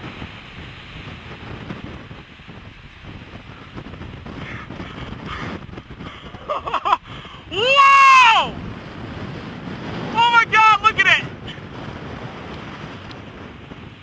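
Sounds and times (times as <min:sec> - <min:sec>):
strong wind roaring: 0:00.0 - 0:14.0
person yelling: 0:07.5 - 0:08.6, 0:10.1 - 0:11.3.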